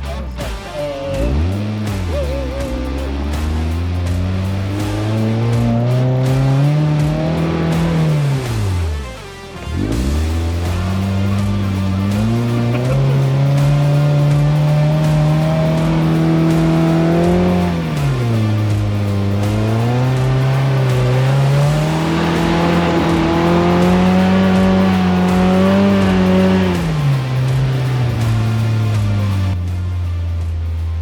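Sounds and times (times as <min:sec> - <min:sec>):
car engine running under load: 0:01.3 - 0:09.1, 0:09.7 - 0:31.0.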